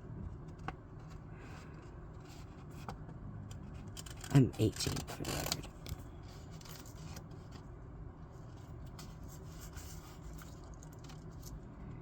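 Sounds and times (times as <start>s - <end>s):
low steady hum: 0.0s - 12.0s
scissors cutting paper: 3.8s - 5.9s.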